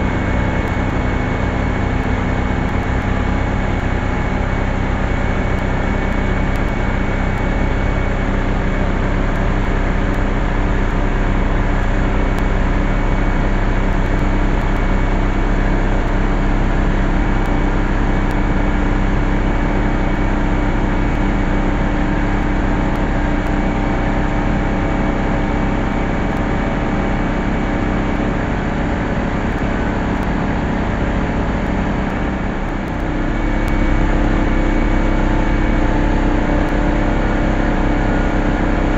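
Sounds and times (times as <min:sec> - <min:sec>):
machine motor hum: 0:13.8 - 0:38.9.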